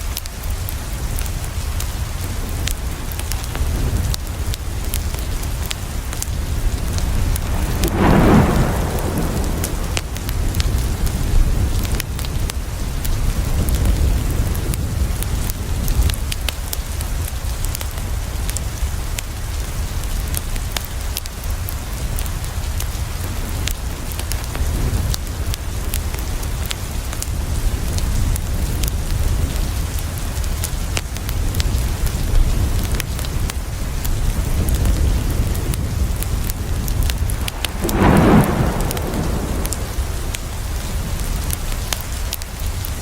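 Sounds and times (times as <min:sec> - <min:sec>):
rain falling: 0:00.0 - 0:43.0
wood fire crackling: 0:02.4 - 0:11.3, 0:36.8 - 0:42.4
deep low rumble: 0:06.2 - 0:11.5, 0:37.0 - 0:41.3.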